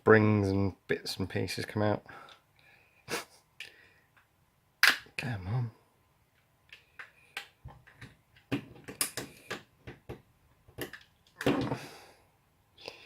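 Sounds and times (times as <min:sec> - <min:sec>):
plastic parts clicking and knocking: 0:06.3 - 0:11.9.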